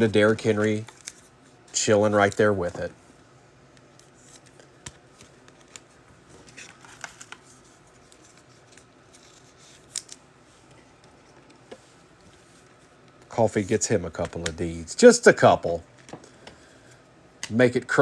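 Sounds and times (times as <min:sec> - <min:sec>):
trading cards clicking and rustling: 0:00.0 - 0:03.0, 0:03.8 - 0:14.8.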